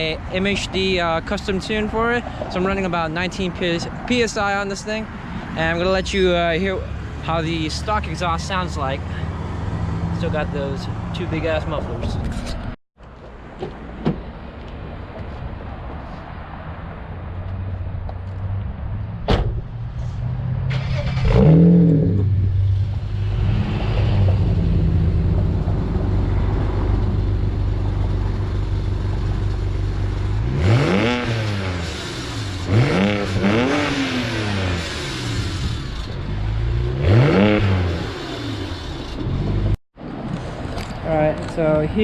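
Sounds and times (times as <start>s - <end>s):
car engine idling and revving: 17.1s - 41.8s.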